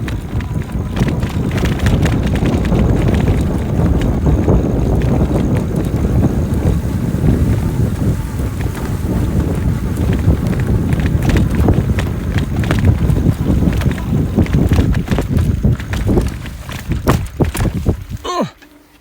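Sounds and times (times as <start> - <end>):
wind rumbling on microphone: 0.0 - 18.4
bike clicking and rattling: 0.0 - 19.0.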